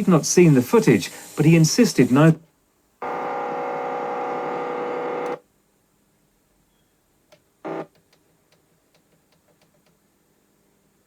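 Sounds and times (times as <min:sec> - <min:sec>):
loud tone with steady pitched lines: 0:03.0 - 0:05.4, 0:07.6 - 0:07.9.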